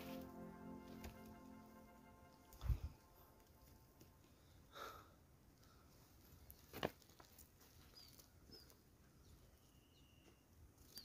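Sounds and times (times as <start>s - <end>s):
faint high bird chirps: 7.8s - 11.0s.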